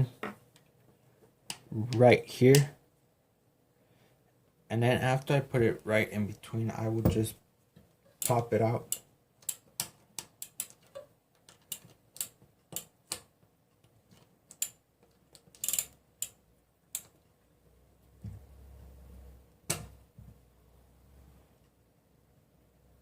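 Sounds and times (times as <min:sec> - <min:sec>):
sharp metal clicks and taps: 0:08.2 - 0:13.3, 0:14.5 - 0:17.2.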